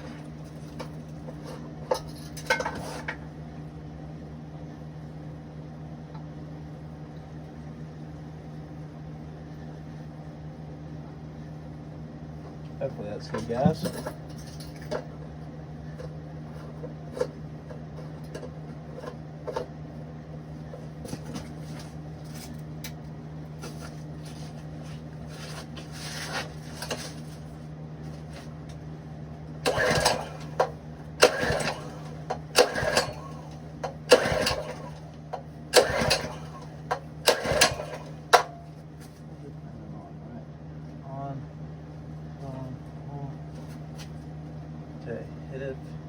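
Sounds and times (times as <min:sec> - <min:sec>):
steady low hum: 0:00.0 - 0:46.0
engine recoil rope pulls: 0:29.6 - 0:38.4.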